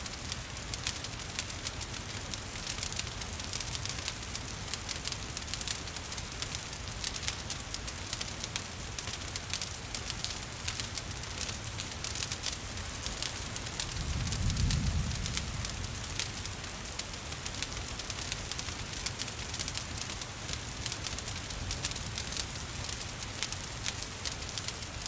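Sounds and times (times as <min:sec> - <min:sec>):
wood fire crackling: 0:00.0 - 0:25.0
rain hissing: 0:12.8 - 0:25.0.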